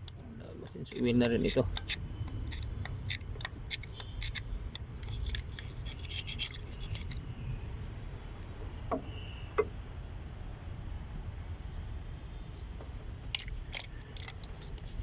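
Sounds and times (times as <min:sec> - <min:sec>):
hand scraping engine parts: 0:00.7 - 0:10.0
light knocks: 0:08.9 - 0:09.8.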